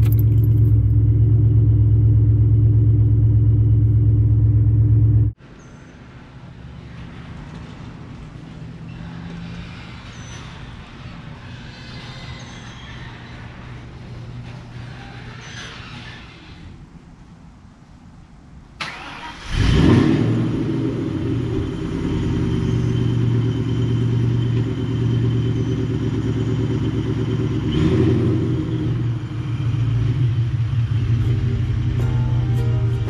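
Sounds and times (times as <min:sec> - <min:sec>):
car engine starting and idling: 0:00.0 - 0:05.4, 0:18.8 - 0:33.0
engine revving: 0:18.8 - 0:33.0.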